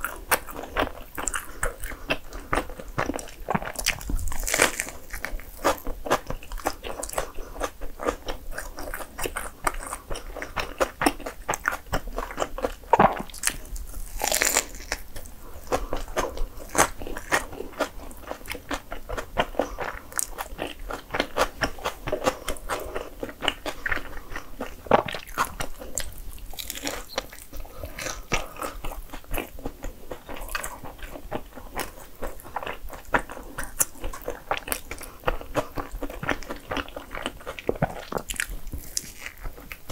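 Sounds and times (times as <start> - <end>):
biting and chewing bread: 0.0 - 39.9.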